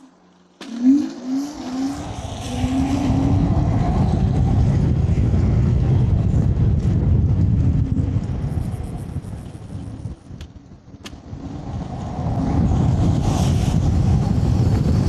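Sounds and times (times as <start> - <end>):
rising and falling whines: 0.0 - 5.4
wind buffeting microphone: 1.8 - 15.0.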